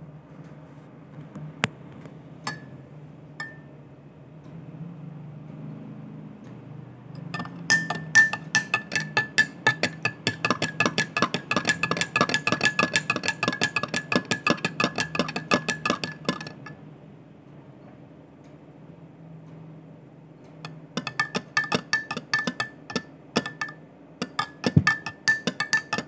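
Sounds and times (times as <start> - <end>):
cup ringing: 2.5 - 2.8, 3.4 - 3.7, 7.2 - 16.8, 20.6 - 26.0
spoon clinking in coffee cup: 2.5 - 2.8, 3.4 - 3.7, 7.2 - 16.8, 20.6 - 26.0.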